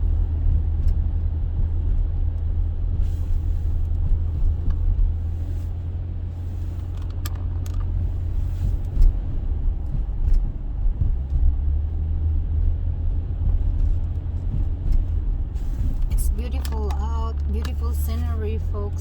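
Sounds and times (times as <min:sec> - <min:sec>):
car engine and road rumble: 0:00.0 - 0:19.0
small clicks and knocks: 0:06.8 - 0:08.0.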